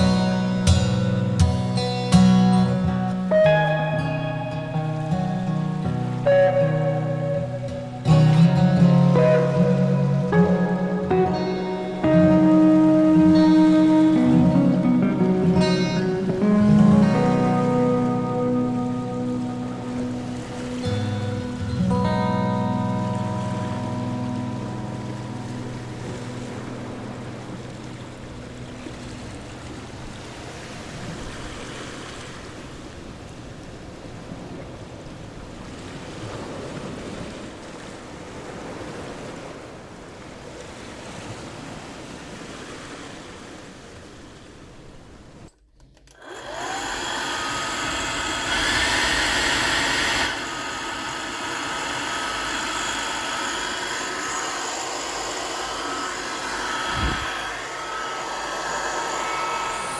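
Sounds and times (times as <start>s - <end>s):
hair dryer whirring: 46.1s - 59.9s
rushing noise: 46.5s - 59.9s.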